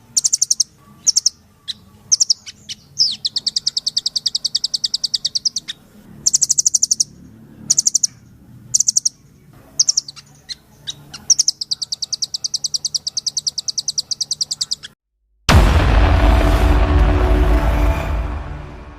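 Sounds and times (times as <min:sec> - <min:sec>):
bird chips: 0:00.0 - 0:15.0
songbird trilling: 0:00.0 - 0:15.0.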